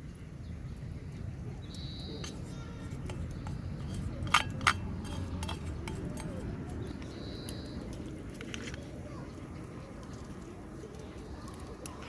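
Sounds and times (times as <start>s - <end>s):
birds calling: 0.0s - 12.0s
tableware clinking: 3.1s - 6.5s.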